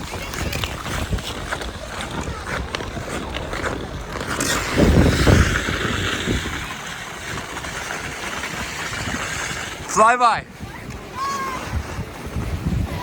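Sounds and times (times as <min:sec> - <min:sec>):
ice skates scraping on ice: 0:00.0 - 0:13.0
wind buffeting microphone: 0:00.0 - 0:13.0.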